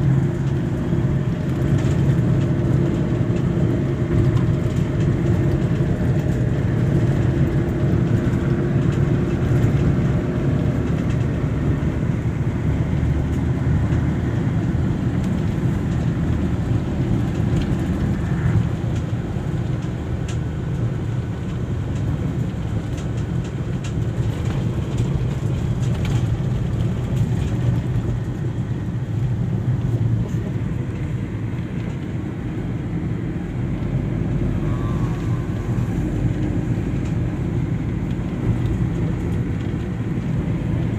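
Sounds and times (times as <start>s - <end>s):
vehicle engine and road rumble: 0.0s - 40.9s.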